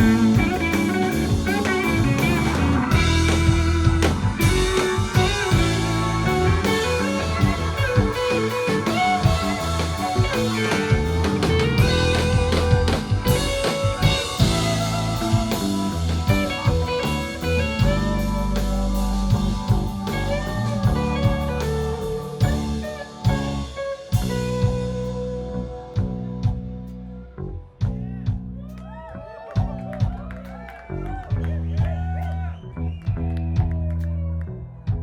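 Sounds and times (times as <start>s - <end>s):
drum kit: 0.0s - 27.0s, 27.8s - 34.0s
electric guitar: 0.0s - 27.2s
bass guitar: 0.0s - 35.0s.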